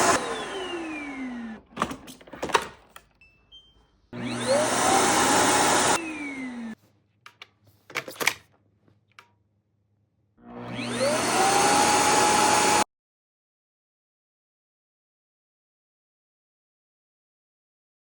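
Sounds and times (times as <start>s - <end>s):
vacuum motor whining: 0.0s - 2.0s, 4.2s - 6.8s, 10.4s - 12.8s.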